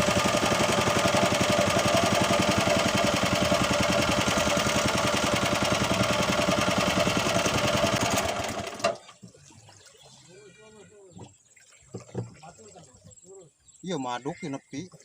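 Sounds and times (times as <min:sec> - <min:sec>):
boat engine running hard: 0:00.0 - 0:09.0.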